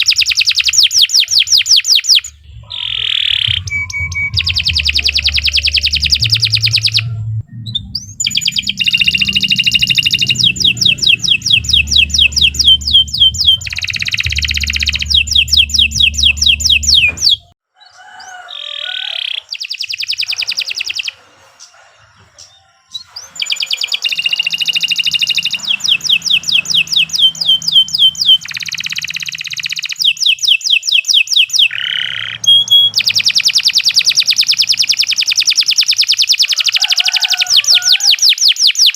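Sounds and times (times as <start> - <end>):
canary singing trills and chirps: 0.0 - 38.9.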